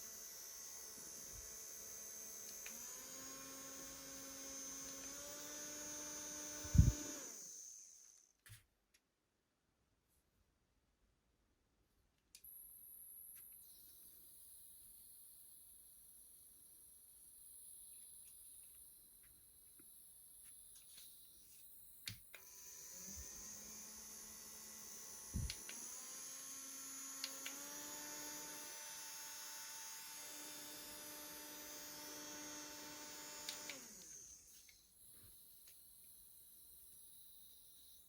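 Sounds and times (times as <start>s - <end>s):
small fan motor whining: 0.0s - 8.3s, 19.8s - 38.0s.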